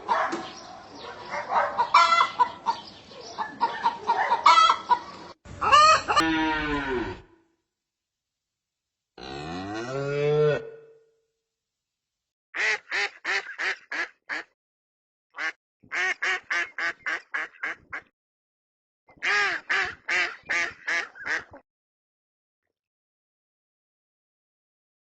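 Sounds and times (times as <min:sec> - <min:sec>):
ducks quacking: 0:00.0 - 0:06.4, 0:19.2 - 0:21.6
cow mooing: 0:06.2 - 0:07.4, 0:09.2 - 0:11.1.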